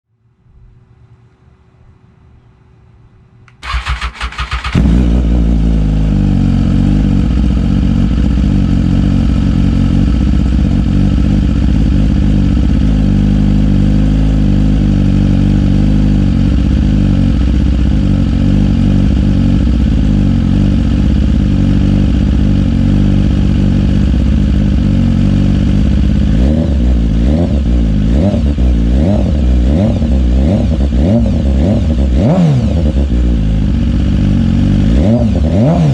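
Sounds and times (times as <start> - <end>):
engine revving in blips: 3.5 - 5.9, 25.9 - 33.4, 34.7 - 35.9
motorcycle engine idling: 3.6 - 35.9.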